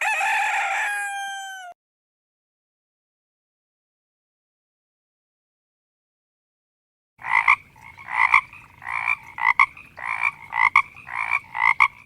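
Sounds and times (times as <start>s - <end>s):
frog croaking: 7.2s - 12.0s.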